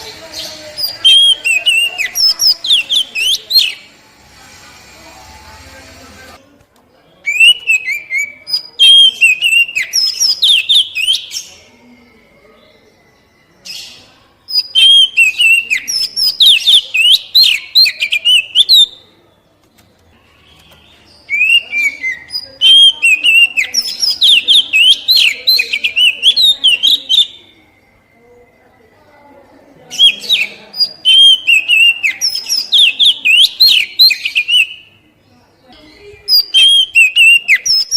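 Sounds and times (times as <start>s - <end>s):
bird singing whistled trills: 7.2s - 11.5s, 12.2s - 19.1s, 20.4s - 28.6s, 29.9s - 35.0s, 35.9s - 37.9s.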